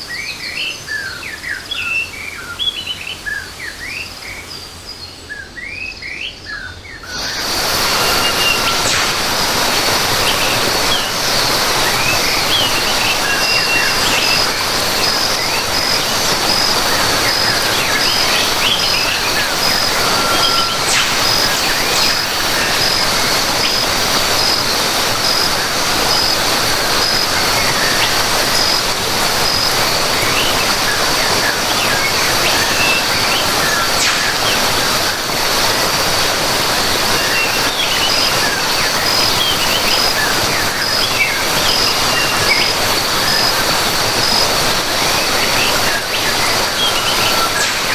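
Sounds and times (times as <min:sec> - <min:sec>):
insect's pulsing high note: 0:07.1 - 0:23.9, 0:47.0 - 0:47.9
rush of falling water: 0:07.1 - 0:47.9
bird chirps and calls: 0:29.5 - 0:35.2, 0:45.1 - 0:47.9.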